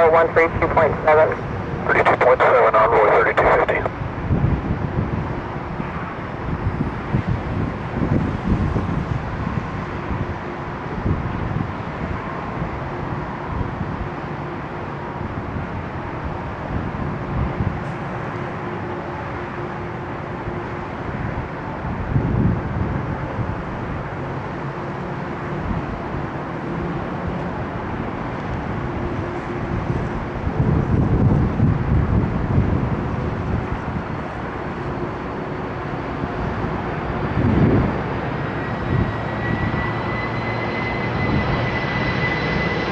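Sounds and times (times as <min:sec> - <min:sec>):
distant jet engine hum: 0:00.0 - 0:42.9
jet engine whine rising: 0:00.0 - 0:42.9
wind on microphone: 0:03.3 - 0:14.1, 0:21.1 - 0:24.0, 0:28.5 - 0:35.1, 0:36.4 - 0:39.9.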